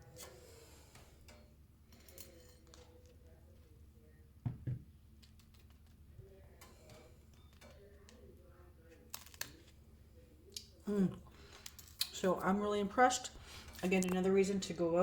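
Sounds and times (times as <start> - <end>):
faint clicks and taps of handling: 0.1 - 3.8.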